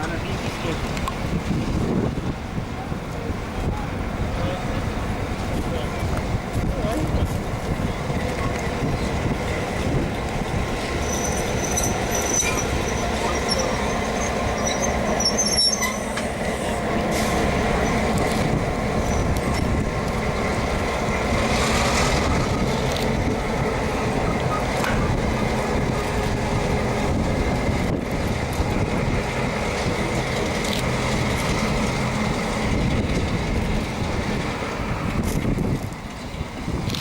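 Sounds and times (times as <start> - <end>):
locomotive rumble: 0.0 - 37.0
high wheel squeals: 10.8 - 18.2, 19.0 - 19.7.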